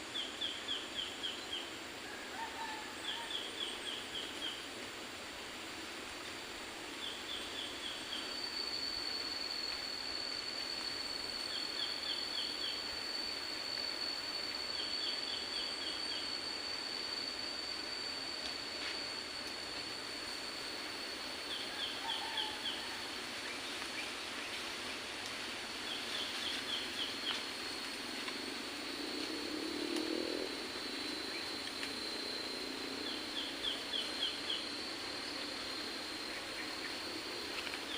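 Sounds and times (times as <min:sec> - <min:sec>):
even hiss: 0:02.9 - 0:37.9.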